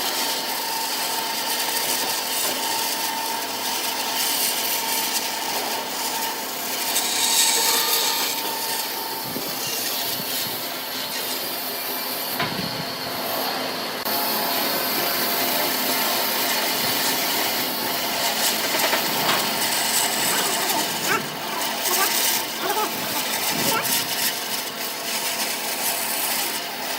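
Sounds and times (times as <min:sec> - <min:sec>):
lathe machine noise: 0:00.0 - 0:26.9
tool scraping spinning wood: 0:01.3 - 0:11.4, 0:16.4 - 0:26.8.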